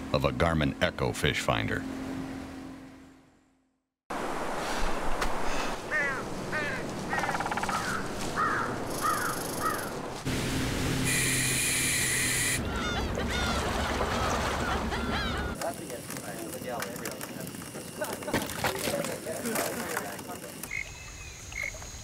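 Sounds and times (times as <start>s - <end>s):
birds calling: 5.8s - 10.2s, 11.1s - 15.7s.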